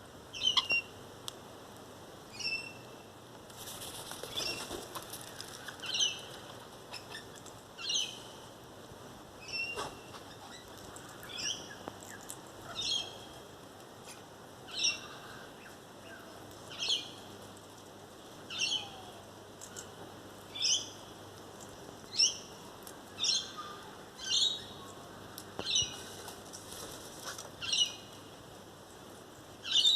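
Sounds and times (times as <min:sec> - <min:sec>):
parrots high sharp calls: 0:00.4 - 0:00.9.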